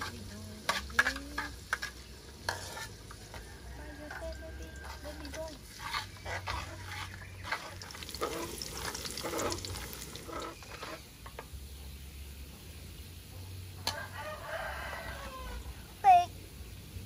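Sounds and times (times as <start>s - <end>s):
metal ladle scraping a pan: 0.0s - 11.5s
food sizzling in a wok: 0.0s - 17.0s.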